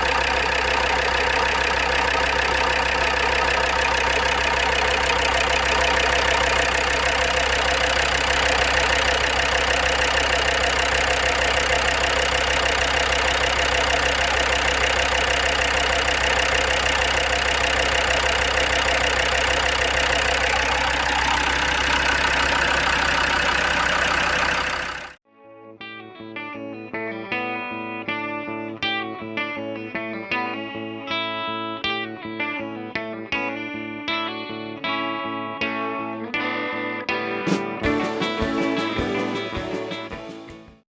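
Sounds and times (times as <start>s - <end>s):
diesel engine idling with ticking: 0.0s - 25.2s.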